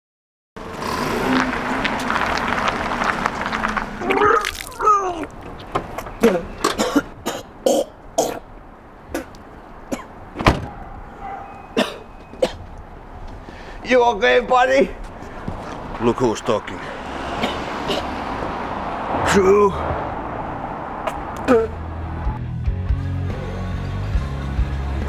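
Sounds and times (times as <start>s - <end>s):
man retching: 0.8s - 2.1s, 4.0s - 5.4s, 6.0s - 8.5s, 9.1s - 10.2s, 11.7s - 12.8s, 17.3s - 18.2s, 21.0s - 21.8s
man coughing and gagging: 6.2s - 8.5s, 9.1s - 10.2s, 11.7s - 12.8s, 17.2s - 18.4s, 21.0s - 21.8s
man groaning: 21.4s - 21.8s.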